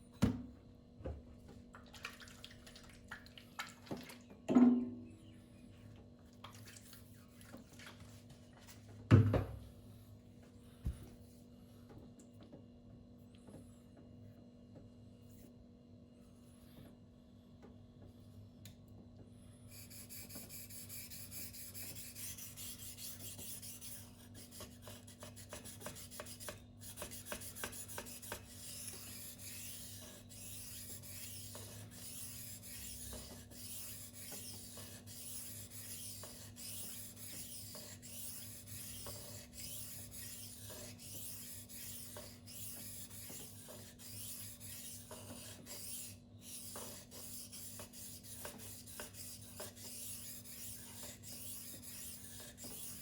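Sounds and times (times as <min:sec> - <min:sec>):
knife scraping on whetstone: 0:19.9 - 0:53.0.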